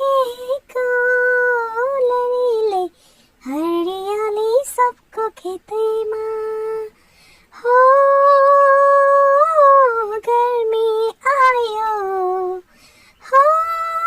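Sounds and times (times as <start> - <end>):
high-pitched voice singing: 13.2 - 14.0.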